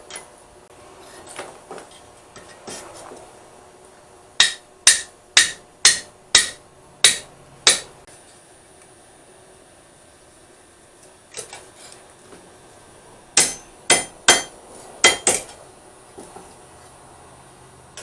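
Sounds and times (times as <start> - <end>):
hammer striking steel on anvil: 4.4 - 8.0, 13.4 - 15.6.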